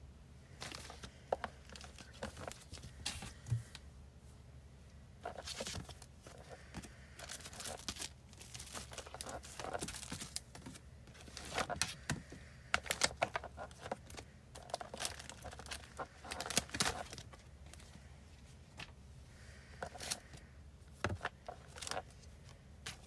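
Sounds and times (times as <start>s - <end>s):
paper and plastic crinkling: 0.6s - 3.8s, 5.2s - 18.0s, 19.8s - 23.0s.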